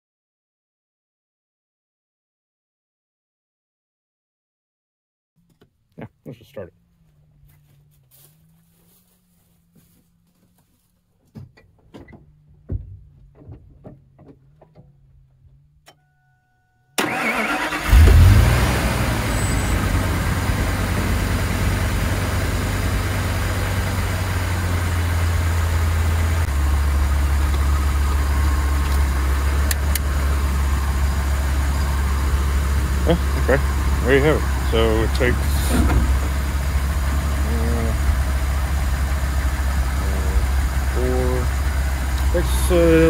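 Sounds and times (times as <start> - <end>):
truck engine cranking and starting: 17.0 - 43.0
truck engine idling: 17.0 - 43.0.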